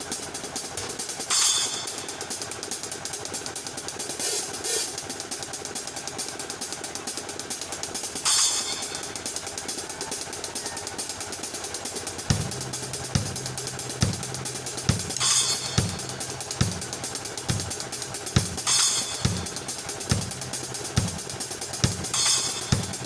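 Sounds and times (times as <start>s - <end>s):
fast hi-hat: 0.0s - 23.0s
cymbal crashes: 1.0s - 2.6s, 8.2s - 9.2s, 12.3s - 23.0s
kick drum beats: 12.3s - 23.0s.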